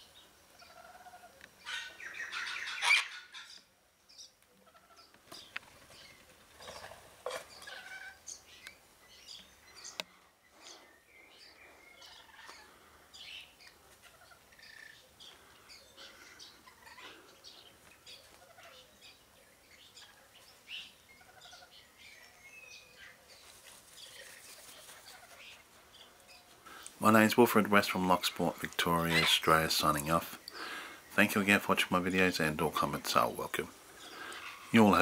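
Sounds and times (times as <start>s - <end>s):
birds chirping: 0.0s - 35.0s
bird harsh screech: 1.7s - 3.3s.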